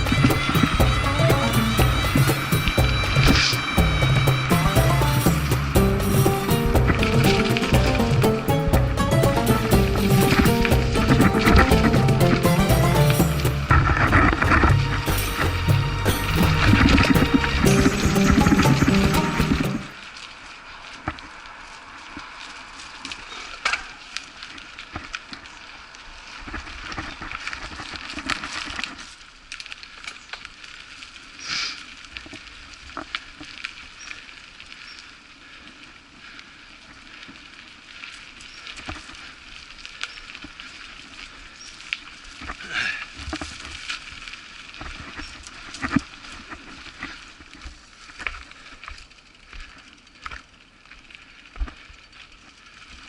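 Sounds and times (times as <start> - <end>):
bike clicks and rattles: 0.0 - 15.5
bike tyres crunching on dirt: 0.0 - 53.0.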